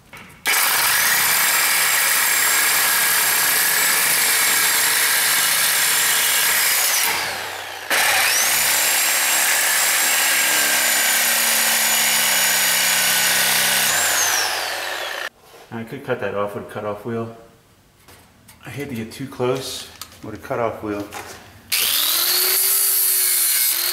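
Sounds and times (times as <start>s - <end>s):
cutoff wheel cutting steel: 0.5s - 15.3s, 21.7s - 23.9s.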